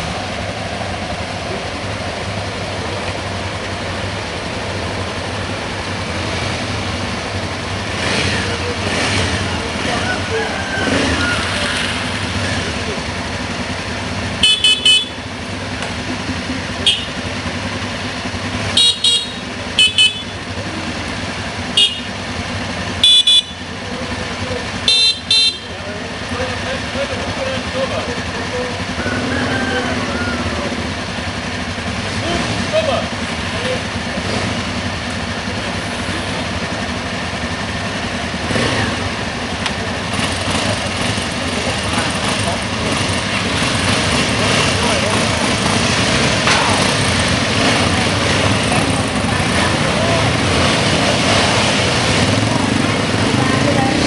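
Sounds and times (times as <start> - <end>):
engines running on road: 0.0 - 54.0
motorcycle horn beeps: 14.3 - 15.4, 16.7 - 17.4, 18.5 - 20.6, 21.7 - 23.9, 24.7 - 25.8
broad rushing noise: 38.0 - 54.0.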